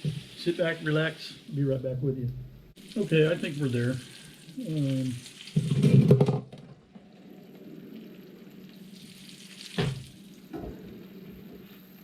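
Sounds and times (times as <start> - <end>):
sausage sizzling in a frying pan: 0.0 - 1.8, 2.8 - 6.0, 7.7 - 12.0.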